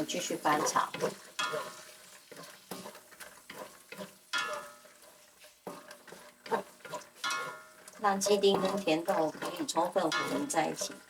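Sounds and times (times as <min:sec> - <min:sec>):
light sizzle: 0:00.0 - 0:11.0
spatula scraping pan: 0:00.0 - 0:11.0.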